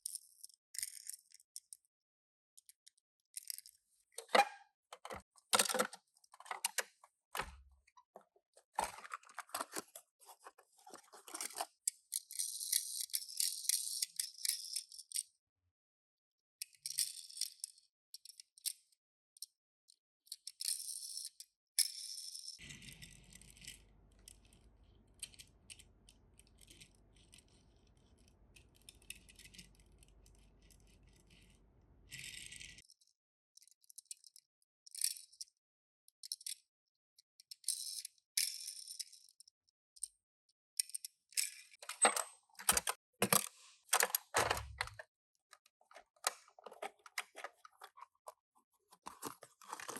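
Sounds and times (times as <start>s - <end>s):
toy cars clicking and rattling: 0.0s - 1.9s, 2.6s - 4.3s, 8.7s - 15.4s, 16.6s - 19.5s, 20.3s - 35.6s, 36.2s - 36.7s, 37.4s - 40.1s, 45.8s - 48.1s, 49.0s - 49.9s.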